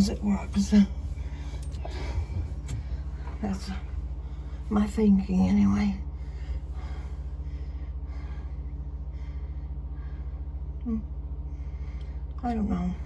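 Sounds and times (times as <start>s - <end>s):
steady low hum: 0.0s - 13.0s
person breathing: 6.1s - 10.7s.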